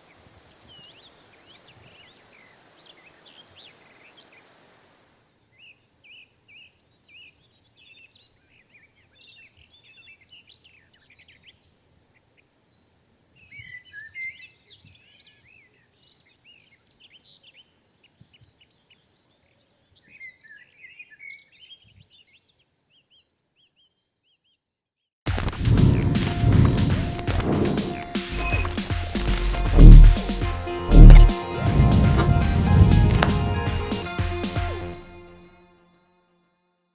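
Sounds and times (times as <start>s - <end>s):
small birds chirping: 5.4s - 24.8s
music: 25.3s - 36.9s.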